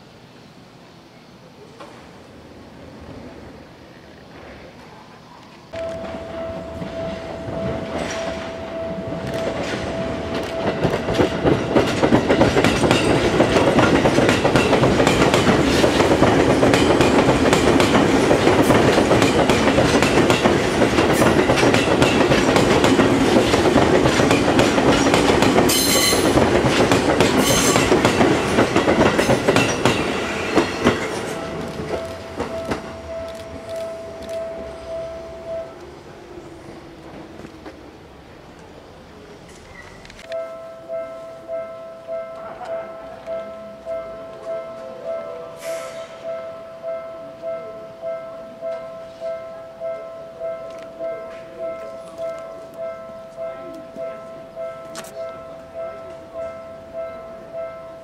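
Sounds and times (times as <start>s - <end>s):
train wheels clattering: 5.8s - 34.7s.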